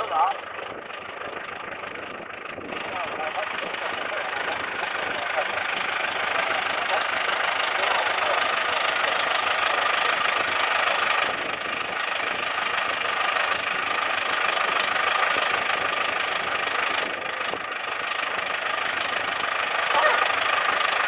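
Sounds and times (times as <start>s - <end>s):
farm machinery engine running: 0.0s - 21.0s.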